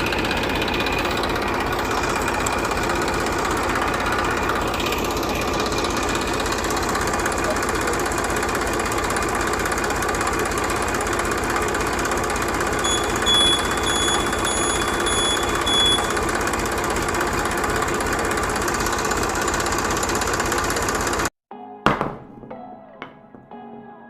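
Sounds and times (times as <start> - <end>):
small tractor engine knocking: 0.0 - 21.3
short high beeps: 12.8 - 16.2.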